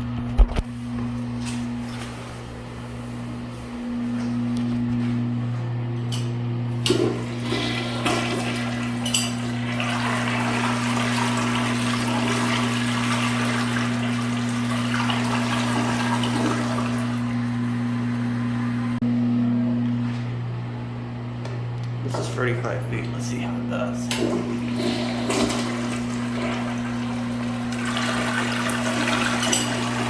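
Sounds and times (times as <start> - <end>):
toilet flush mechanism click: 6.0 - 18.8, 24.0 - 30.0
water rushing through toilet bowl: 6.8 - 19.0, 24.1 - 30.0.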